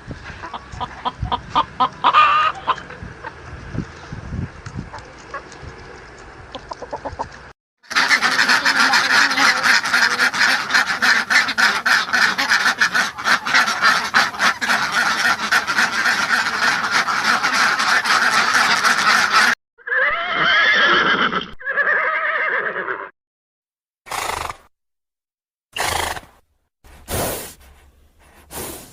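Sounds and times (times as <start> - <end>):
poultry clucking: 0.2 - 3.5, 6.5 - 19.6
poultry flock calling: 0.3 - 3.4, 7.9 - 19.6.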